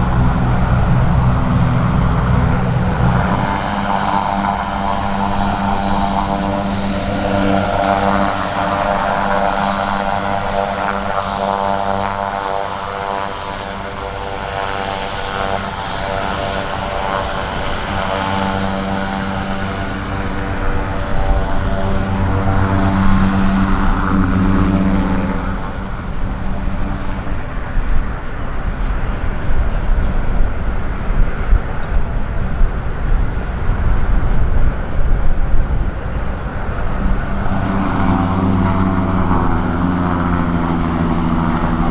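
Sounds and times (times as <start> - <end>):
aircraft engines humming: 0.0 - 41.9.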